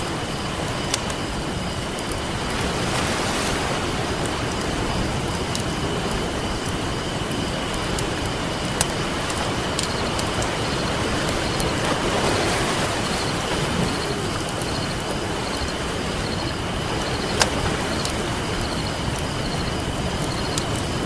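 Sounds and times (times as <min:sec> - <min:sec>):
campfire crackling and popping: 0:00.0 - 0:02.8, 0:04.0 - 0:12.0, 0:13.5 - 0:21.0
ocean waves breaking: 0:00.0 - 0:21.0.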